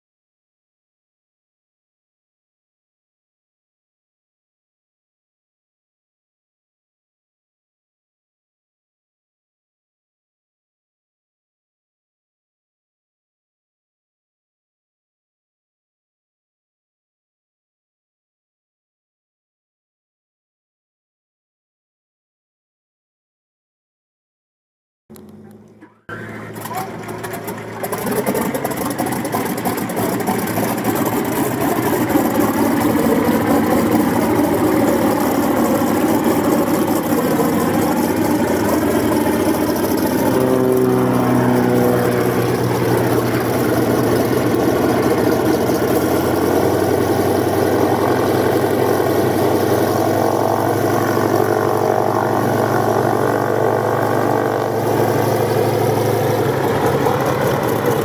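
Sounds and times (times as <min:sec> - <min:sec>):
radial aircraft engine idling: 0:25.1 - 0:58.0.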